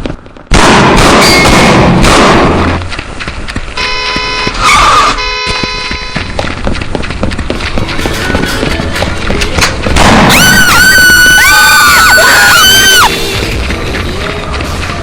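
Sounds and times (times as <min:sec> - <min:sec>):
car horn blaring: 0:03.8 - 0:06.4
loud rushing noise: 0:12.9 - 0:15.0.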